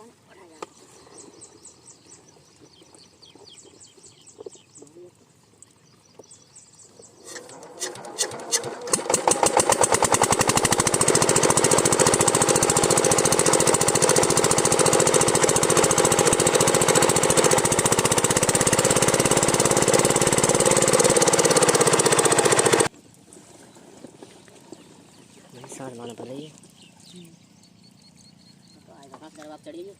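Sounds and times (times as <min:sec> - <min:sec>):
diesel engine starting and running: 0:07.3 - 0:22.9.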